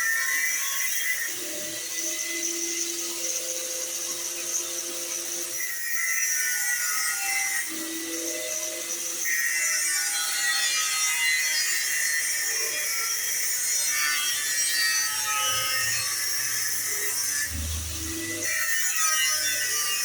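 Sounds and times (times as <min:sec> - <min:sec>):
tool scraping a workpiece: 0:15.5 - 0:20.0
low thud: 0:17.5 - 0:18.5.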